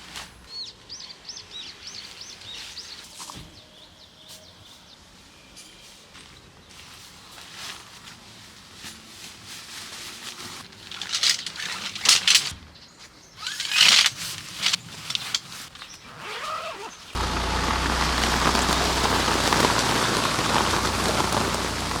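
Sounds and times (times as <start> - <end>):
scattered knocks and rustling: 10.7 - 12.6, 13.4 - 15.9
steady rain: 17.2 - 22.0.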